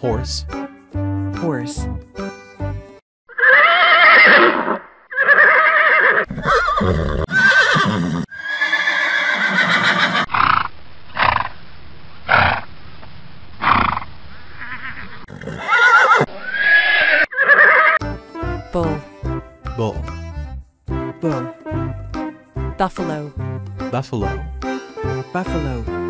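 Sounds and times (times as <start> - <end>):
horses whinnying and neighing: 3.3 - 10.6, 13.6 - 18.0.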